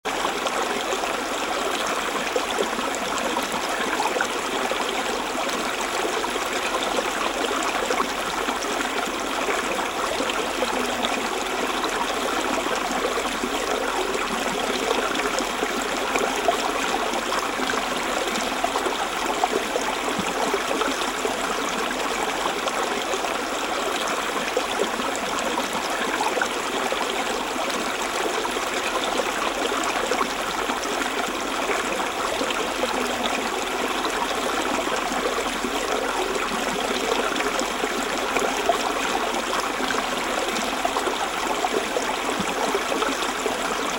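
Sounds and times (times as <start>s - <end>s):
stream running over stones: 0.0s - 43.9s.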